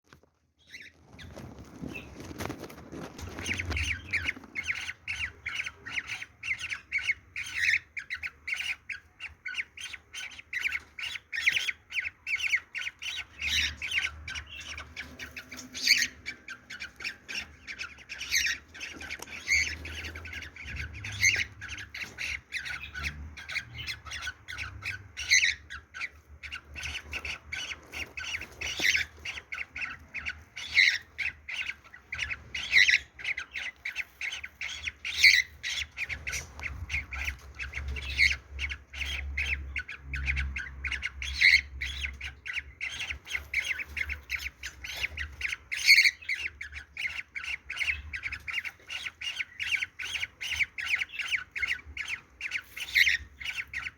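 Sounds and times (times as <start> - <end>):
cockatiel squawking chirps: 3.2 - 53.9.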